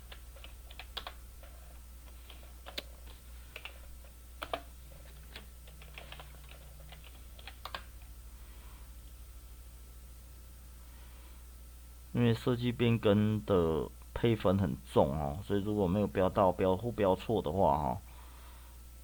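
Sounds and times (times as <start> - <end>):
keyboard typing: 0.0 - 8.1
steady low hum: 0.0 - 19.0.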